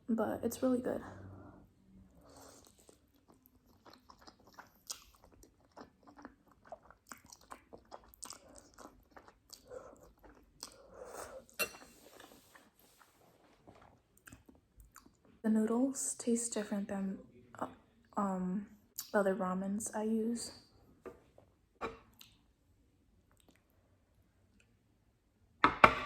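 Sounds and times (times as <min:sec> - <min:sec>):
person chewing noodles: 0:02.2 - 0:15.2.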